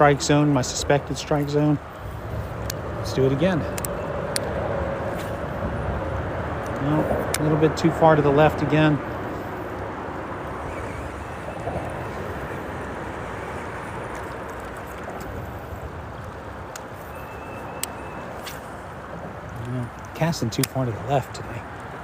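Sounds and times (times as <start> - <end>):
freeway traffic rumble: 0.0 - 22.0.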